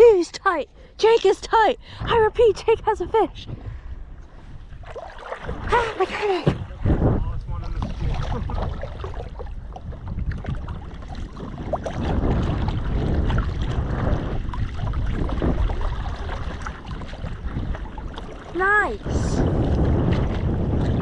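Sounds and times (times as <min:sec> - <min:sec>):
wind buffeting microphone: 0:00.0 - 0:21.0
shallow water sloshing: 0:01.7 - 0:21.0.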